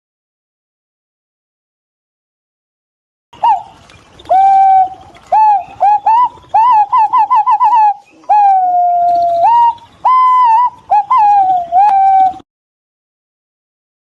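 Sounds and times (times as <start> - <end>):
pigeon whistling song: 3.4 - 12.4.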